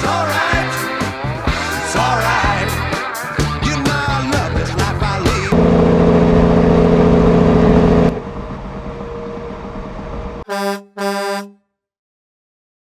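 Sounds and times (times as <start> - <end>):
vehicle horn blast: 10.4 - 11.6
vehicle horn short toots: 10.5 - 11.6.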